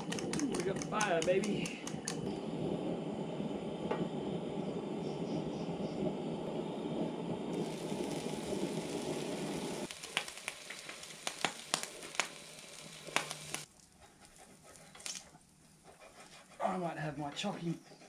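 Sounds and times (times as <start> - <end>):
food sizzling on a hotplate: 6.7 - 13.7.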